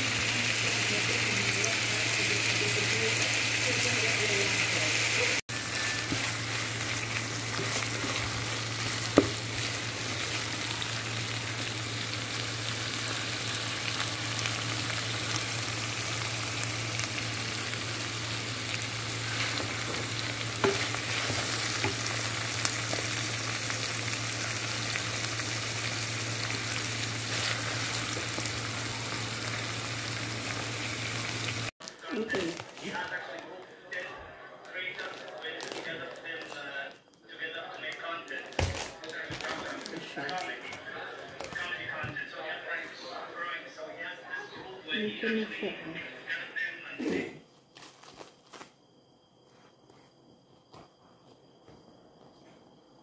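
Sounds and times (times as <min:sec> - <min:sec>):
chicken sizzling in a frying pan: 0:00.0 - 0:33.1
wooden spatula scraping a pan: 0:19.3 - 0:22.1.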